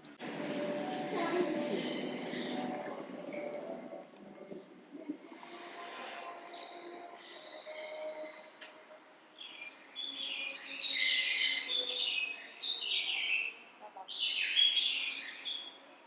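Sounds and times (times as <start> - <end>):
small birds chirping: 5.9 - 15.9.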